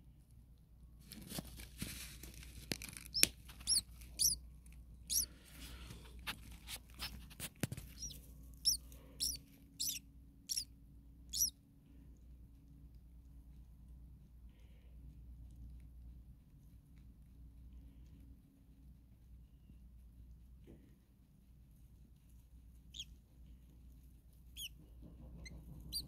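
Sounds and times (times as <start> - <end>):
dry grass rustling: 1.0 - 4.0
nestlings cheeping: 2.8 - 5.4, 7.8 - 10.7, 11.3 - 11.6, 24.6 - 24.8, 25.4 - 26.0.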